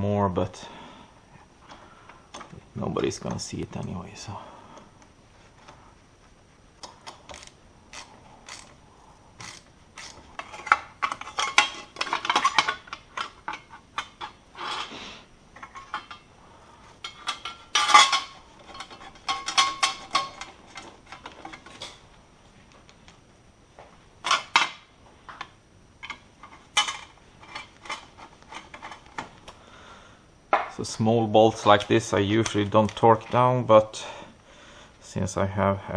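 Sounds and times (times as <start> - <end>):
tools clinking on metal parts: 6.8 - 8.7, 9.4 - 14.9, 17.0 - 22.0, 26.0 - 29.2.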